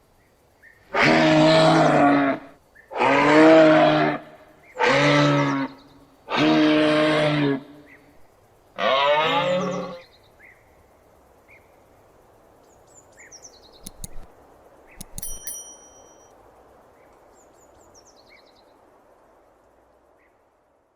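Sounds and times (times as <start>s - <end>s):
steady outdoor hiss: 0.0s - 20.9s
moose bellowing: 8.8s - 10.0s
clicks: 13.8s - 14.3s, 15.0s - 16.2s.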